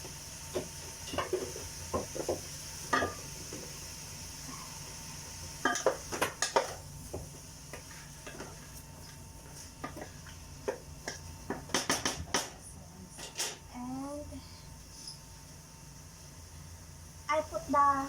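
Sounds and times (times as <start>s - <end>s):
faint sizzle: 0.0s - 11.8s, 12.4s - 18.0s.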